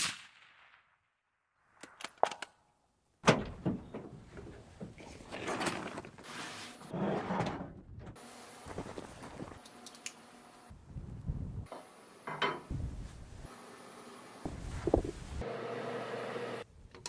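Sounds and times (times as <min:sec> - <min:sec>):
rubbing and scraping: 0:14.5 - 0:15.4.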